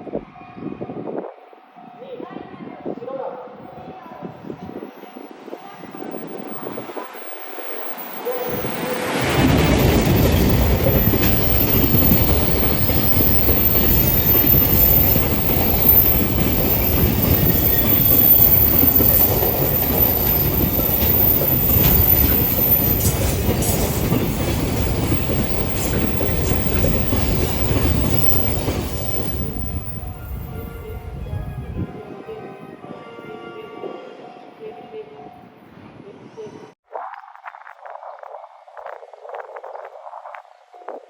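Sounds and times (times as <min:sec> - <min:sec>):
train wheels on rails: 0:04.7 - 0:31.1.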